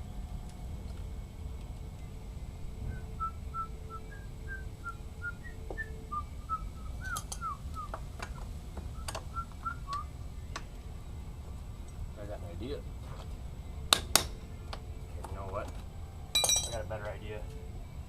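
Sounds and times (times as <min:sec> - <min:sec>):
person whistling a tune: 0:02.8 - 0:10.1.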